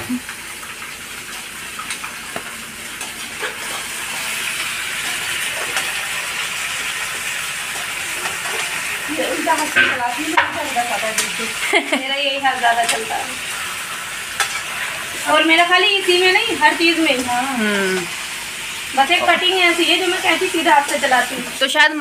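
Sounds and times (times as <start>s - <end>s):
onions sizzling in a pot: 0.0s - 22.0s
person speaking: 17.4s - 18.1s.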